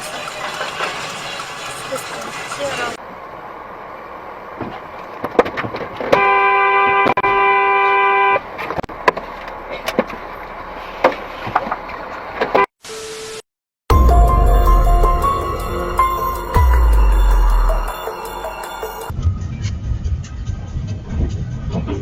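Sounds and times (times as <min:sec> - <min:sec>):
traffic noise: 0:00.0 - 0:12.7
car horn honking: 0:06.1 - 0:08.5.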